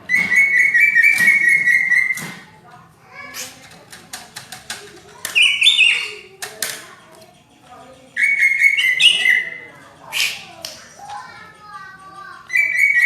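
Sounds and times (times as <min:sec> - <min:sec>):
sharp clicks: 0:03.4 - 0:07.5
bird singing whistled phrases: 0:05.4 - 0:06.2, 0:08.2 - 0:10.5.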